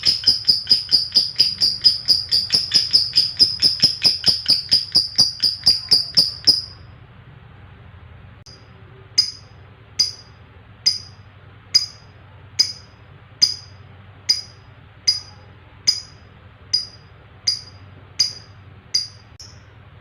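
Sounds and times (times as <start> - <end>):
bird chirping: 0.0 - 6.8.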